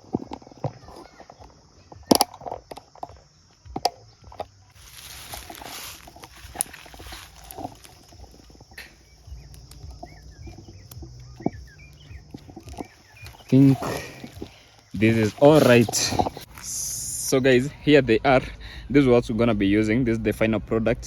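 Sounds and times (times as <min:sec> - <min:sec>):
faint bird chirps: 0:00.0 - 0:17.9
sharp snaps and clicks: 0:01.4 - 0:17.0
rustling hiss: 0:04.8 - 0:17.8.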